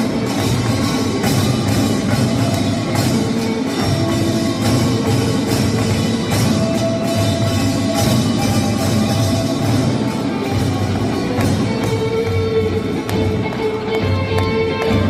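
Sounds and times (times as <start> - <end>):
percussion band playing: 0.0 - 15.0.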